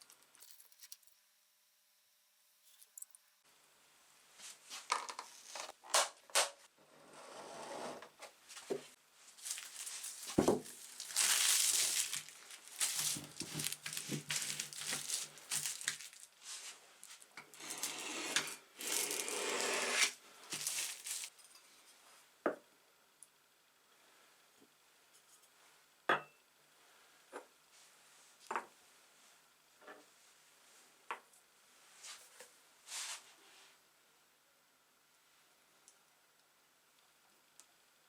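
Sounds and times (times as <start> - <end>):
small metal parts clinking: 0.0 - 1.2.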